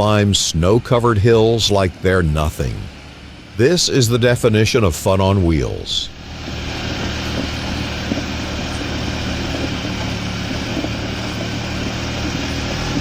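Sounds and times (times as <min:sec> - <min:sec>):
small car engine running: 0:00.0 - 0:13.0.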